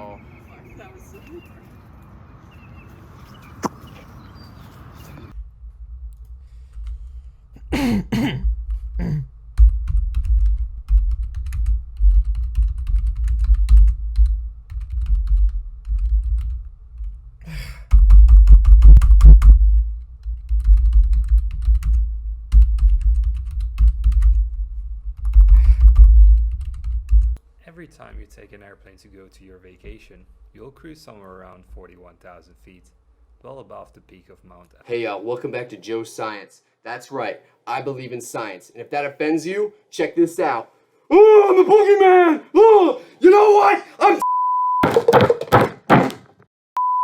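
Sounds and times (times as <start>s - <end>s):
heavy typing on keyboard: 9.6s - 16.6s, 20.2s - 24.4s.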